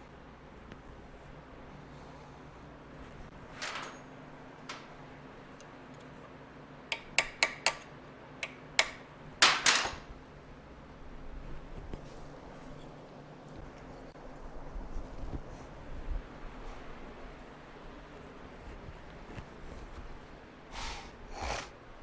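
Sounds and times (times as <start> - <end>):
sharp metallic clicks: 6.9 - 9.0.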